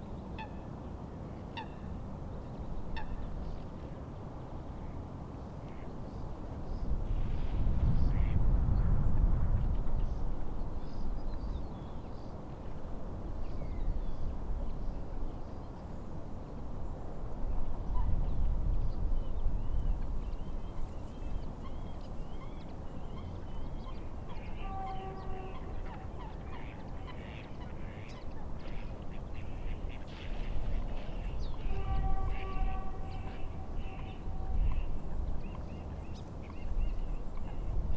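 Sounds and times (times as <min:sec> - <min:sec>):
wind: 0:00.0 - 0:37.9
waterbird honking call: 0:24.3 - 0:28.2, 0:31.6 - 0:35.0.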